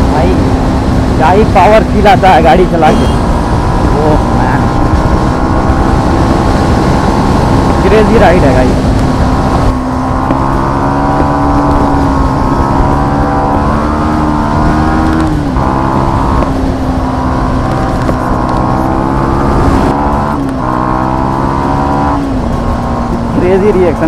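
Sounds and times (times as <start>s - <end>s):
motorcycle engine running: 0.0s - 24.0s
wind rush over microphone: 0.0s - 24.0s.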